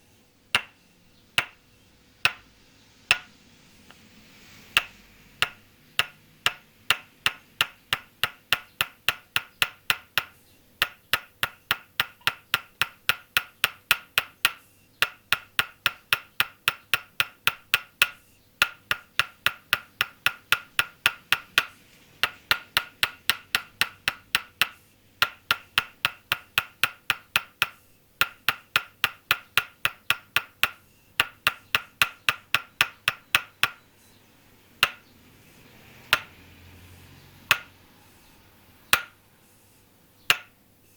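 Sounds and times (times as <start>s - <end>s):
wooden mallet tapping wooden stake: 0.5s - 0.8s, 1.4s - 1.6s, 2.2s - 2.5s, 3.1s - 3.4s, 4.7s - 33.9s, 34.8s - 35.1s, 36.0s - 36.4s, 37.4s - 37.8s, 38.9s - 39.2s, 40.3s - 40.6s.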